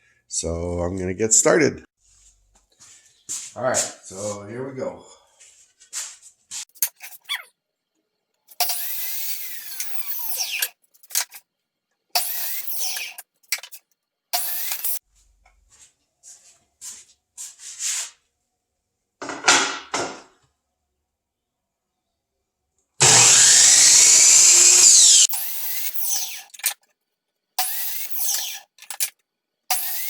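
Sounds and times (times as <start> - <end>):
power tool hissing on wood: 8.6 - 10.7, 12.2 - 13.8, 14.4 - 15.0, 23.0 - 26.6, 27.6 - 28.9, 29.7 - 30.0.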